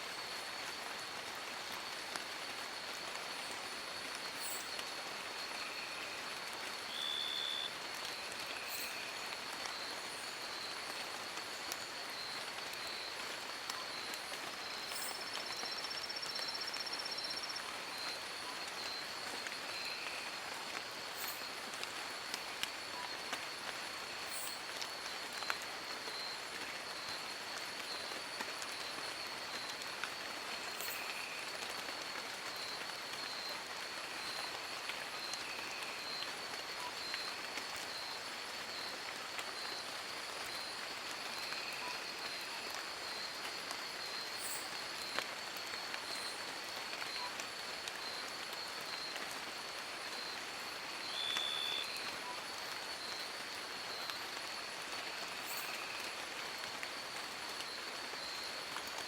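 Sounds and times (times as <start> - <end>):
rain falling on leaves: 0.0 - 59.0.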